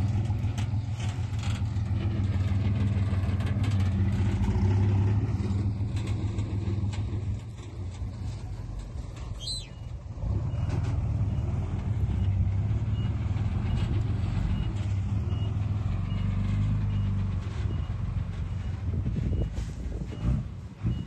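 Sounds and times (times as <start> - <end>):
heavy diesel engine under load: 0.0 - 21.0.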